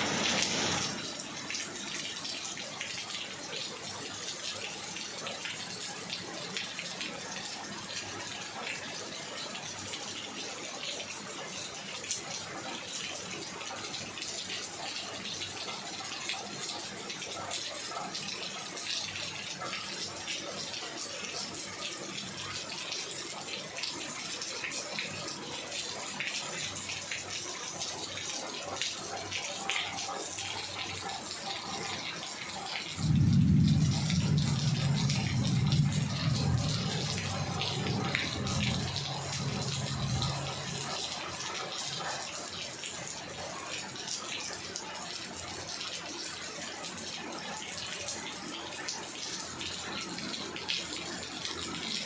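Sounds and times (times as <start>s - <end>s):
heavy rain falling: 0.0s - 52.0s
loud low rumble: 33.0s - 38.8s.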